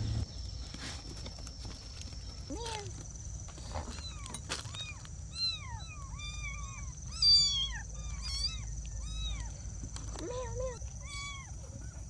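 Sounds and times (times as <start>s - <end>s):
kittens mewing: 3.8s - 12.0s.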